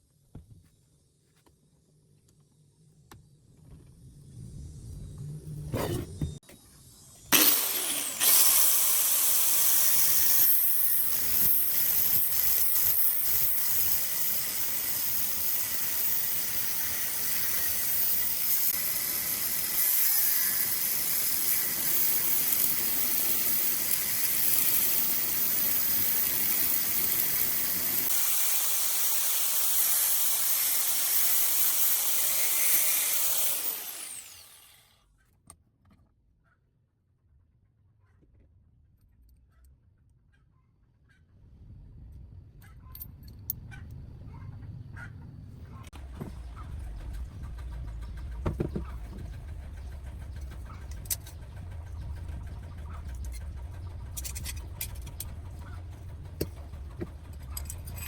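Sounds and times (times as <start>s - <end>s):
electric power tool whirring: 7.2s - 35.0s.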